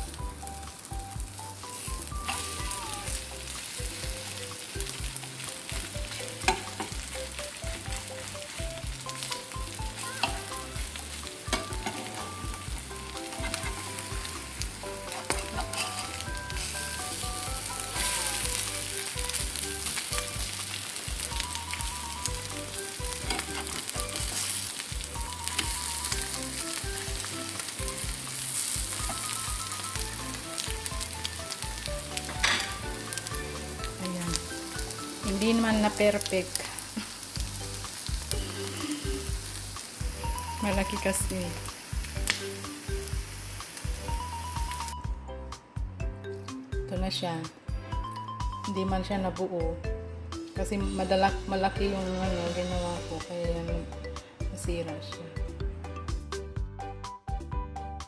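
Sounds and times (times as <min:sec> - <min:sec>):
omelet sizzling in pan: 0:00.0 - 0:45.0
spatula scraping pan: 0:13.0 - 0:14.3, 0:14.9 - 0:16.7, 0:23.1 - 0:24.6.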